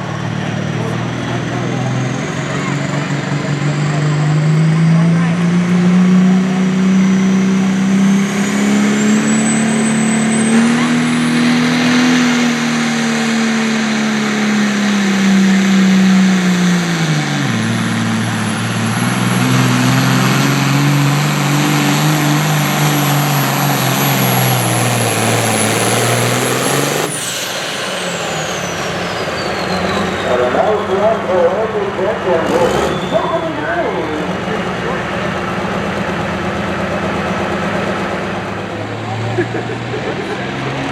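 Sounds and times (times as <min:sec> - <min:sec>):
engine running under load: 0:00.0 - 0:40.9.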